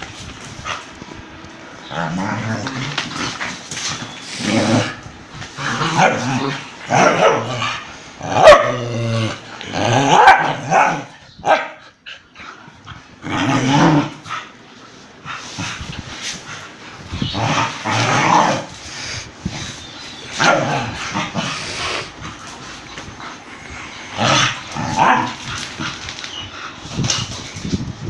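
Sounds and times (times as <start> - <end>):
dogs growling: 1.8 - 11.1, 11.9 - 14.6, 15.2 - 19.5, 20.3 - 27.3
dogs barking: 5.9 - 8.8, 10.0 - 11.9.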